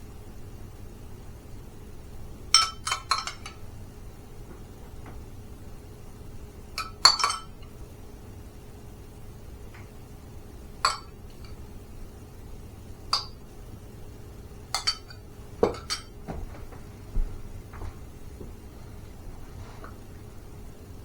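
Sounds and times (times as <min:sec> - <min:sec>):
cutlery clinking against dishes: 0:02.6 - 0:03.6, 0:06.8 - 0:07.7, 0:10.9 - 0:11.6, 0:14.8 - 0:16.2.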